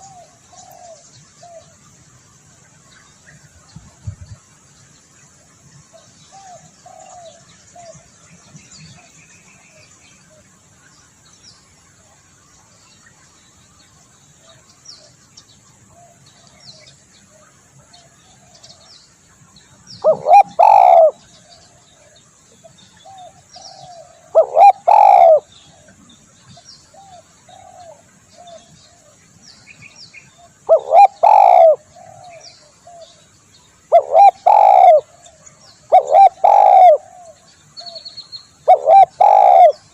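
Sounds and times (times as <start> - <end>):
dove cooing: 0.0 - 1.6, 6.4 - 7.9, 20.0 - 21.6, 23.1 - 25.9, 27.0 - 29.0, 30.4 - 33.1, 33.9 - 35.2, 35.9 - 38.0, 38.6 - 39.9
small bird chirps: 33.9 - 39.9.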